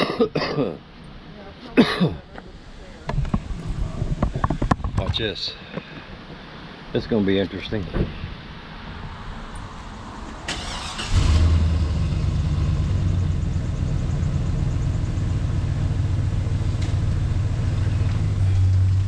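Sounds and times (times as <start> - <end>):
starter cranking truck engine: 10.5 - 14.2
truck engine idling: 10.6 - 19.0.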